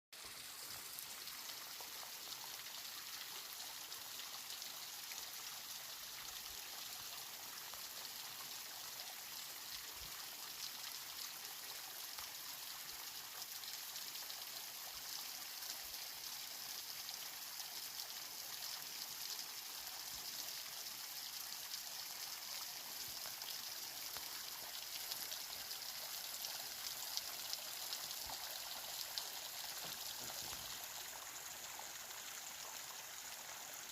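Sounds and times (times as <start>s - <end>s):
water rushing over rocks: 29.7s - 31.0s.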